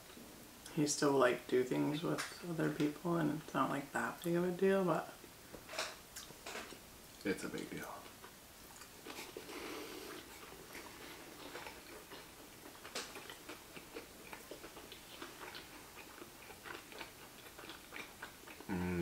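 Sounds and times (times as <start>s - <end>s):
voice: 0.7s - 5.1s, 18.7s - 19.0s
people chewing food: 5.5s - 19.0s.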